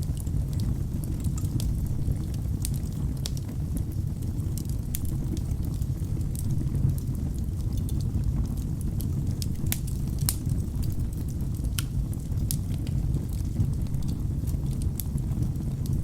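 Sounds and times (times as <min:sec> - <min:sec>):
logs crackling and popping: 0:00.0 - 0:16.0
low rumble of flames: 0:00.0 - 0:16.0.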